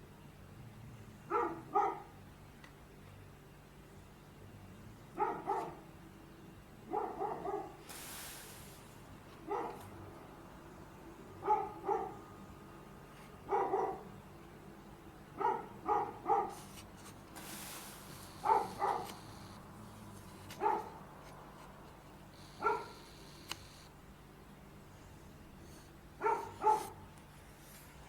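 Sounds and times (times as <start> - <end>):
dog barking: 1.3 - 2.2, 5.2 - 5.9, 6.9 - 7.8, 9.4 - 10.0, 11.4 - 12.3, 13.4 - 14.1, 15.3 - 16.8, 18.3 - 19.5, 20.5 - 21.0, 22.4 - 23.1, 26.2 - 27.0
brief hiss: 7.8 - 9.1, 16.6 - 19.5.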